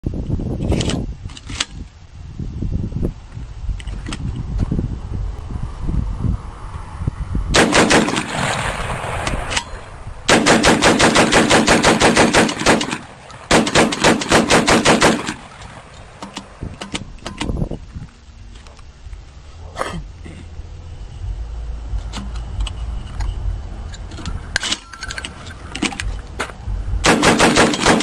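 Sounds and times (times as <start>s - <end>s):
shotgun firing rapid bursts: 7.6s - 8.5s, 10.3s - 15.4s, 27.0s - 28.0s.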